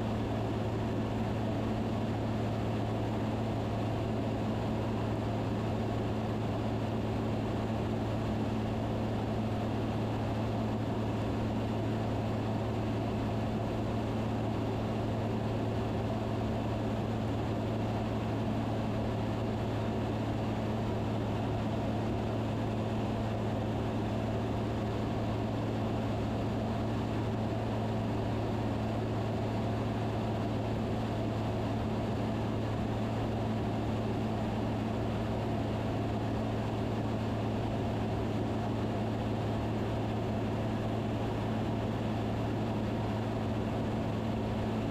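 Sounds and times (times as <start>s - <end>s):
airplane engine and propeller drone: 0.0s - 44.9s.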